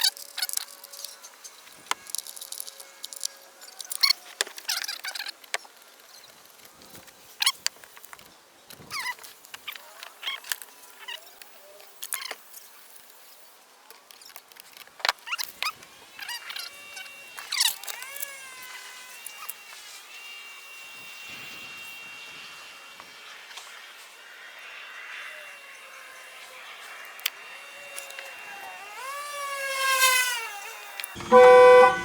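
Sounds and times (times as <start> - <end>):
pitched tone with steady notes: 31.2 - 32.0.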